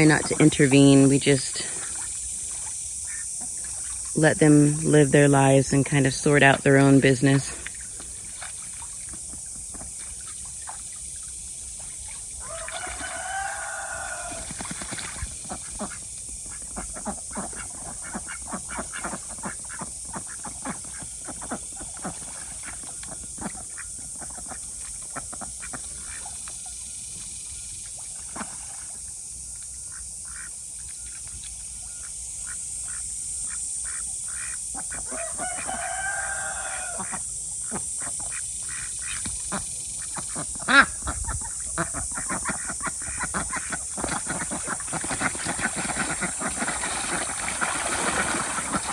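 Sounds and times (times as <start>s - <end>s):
ducks calling: 0.0s - 10.9s, 11.8s - 26.4s, 29.9s - 30.6s, 32.0s - 48.9s
water splashes: 0.0s - 26.4s, 27.8s - 29.2s, 41.7s - 48.9s.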